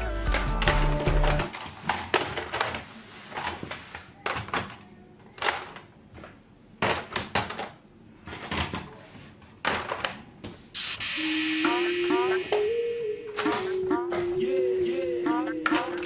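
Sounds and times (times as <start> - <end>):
plastic toys clicking and knocking: 0.3 - 10.3, 15.6 - 16.0.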